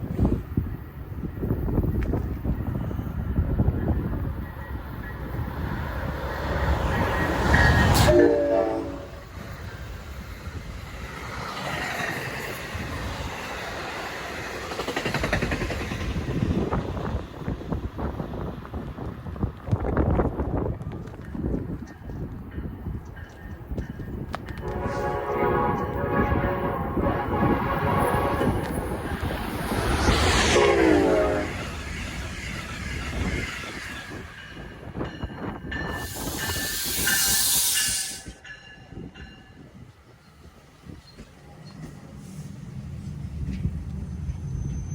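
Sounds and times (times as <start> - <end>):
train passing: 0.0 - 44.9
train horn chord: 8.0 - 9.3, 24.6 - 28.9, 30.4 - 31.7
train wheels clattering: 14.0 - 17.1.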